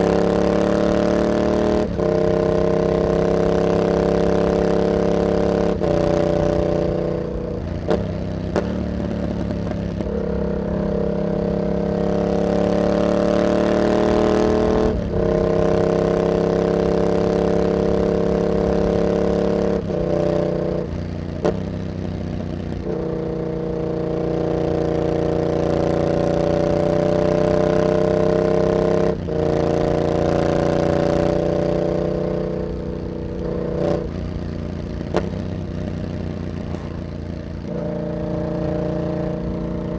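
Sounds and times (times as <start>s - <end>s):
motorcycle engine accelerating: 0.0s - 39.9s
exhaust cracks: 36.5s - 37.5s.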